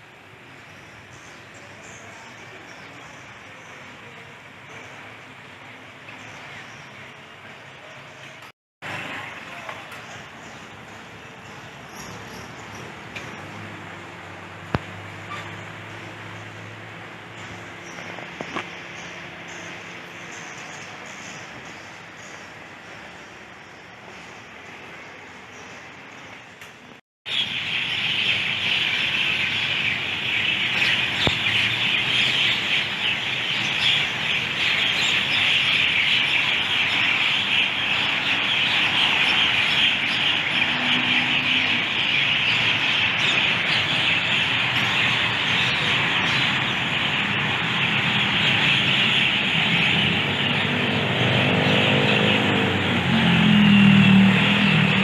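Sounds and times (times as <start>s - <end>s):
traffic rumble: 0.0s - 55.0s
many birds chirping: 0.2s - 14.0s, 14.7s - 26.6s, 27.3s - 55.0s
vehicle engine passing close: 44.5s - 55.0s.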